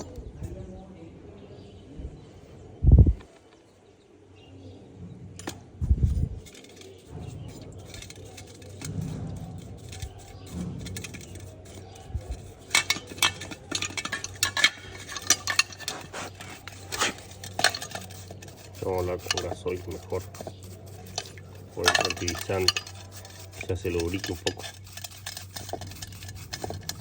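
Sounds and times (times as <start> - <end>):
small metal parts clinking: 6.4 - 19.6.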